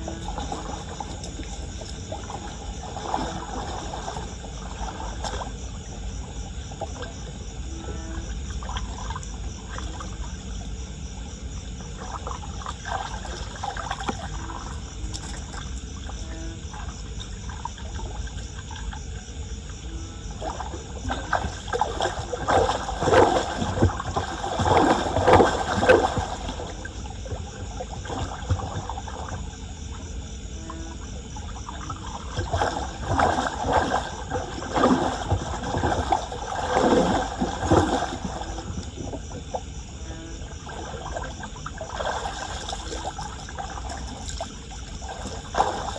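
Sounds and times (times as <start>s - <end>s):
floodwater splashing and trickling: 0.0s - 45.9s.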